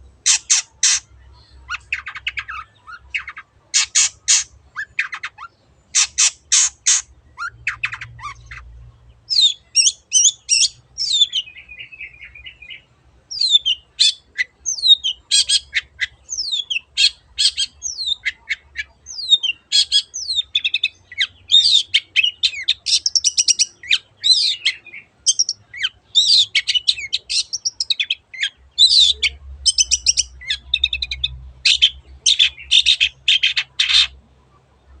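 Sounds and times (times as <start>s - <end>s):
shrike singing: 0.2s - 8.6s.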